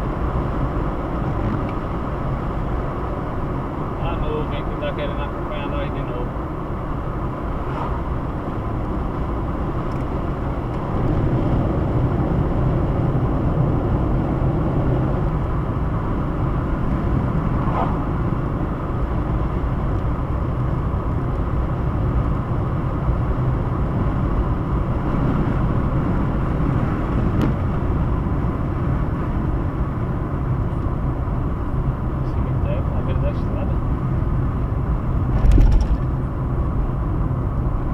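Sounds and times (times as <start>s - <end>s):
car road and engine noise: 0.0s - 37.9s.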